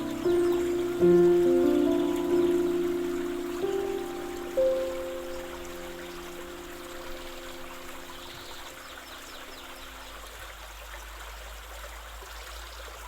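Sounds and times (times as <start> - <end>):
soft background music note: 0.0 - 10.0
stream water running: 0.0 - 13.0.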